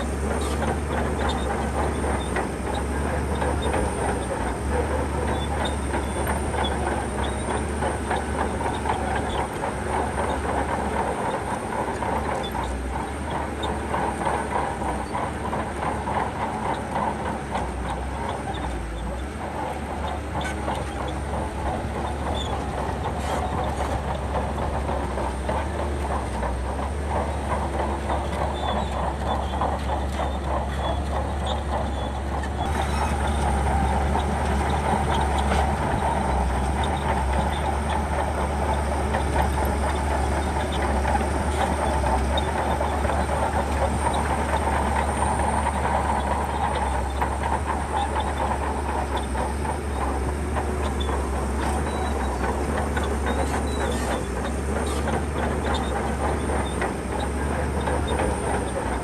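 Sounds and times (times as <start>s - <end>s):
bulldozer diesel engine: 0.0s - 59.0s
steel tracks clattering: 0.0s - 59.0s.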